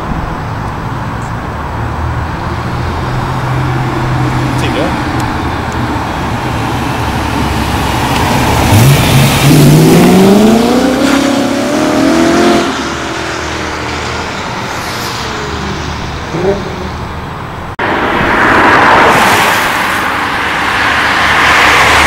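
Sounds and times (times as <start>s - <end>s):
car engine accelerating past: 6.8s - 17.0s.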